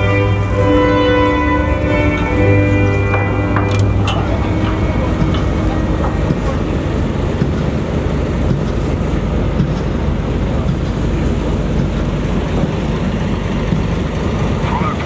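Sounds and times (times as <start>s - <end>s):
wind buffeting microphone: 3.0s - 15.0s.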